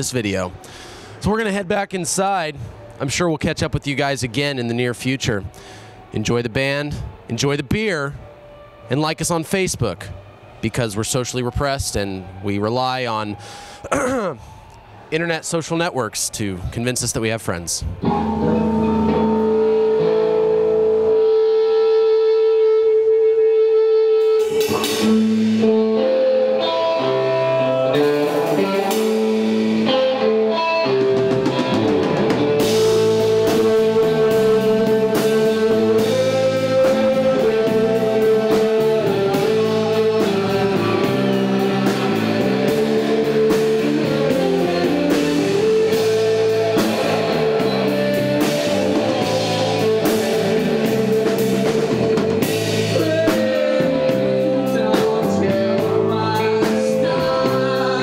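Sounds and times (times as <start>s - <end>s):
bass guitar: 17.8s - 58.0s
electric guitar note ringing: 18.0s - 58.0s
drum kit: 24.2s - 26.0s, 28.0s - 58.0s.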